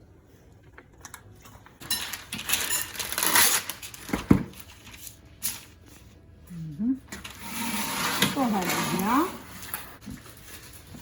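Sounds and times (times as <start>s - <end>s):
crinkly rustling: 1.8s - 6.2s, 8.1s - 11.0s.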